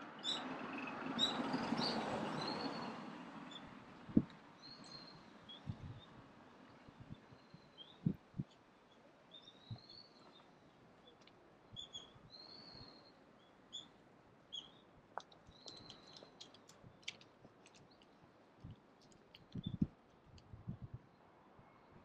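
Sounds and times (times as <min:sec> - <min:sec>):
small birds chirping: 0:04.6 - 0:19.9.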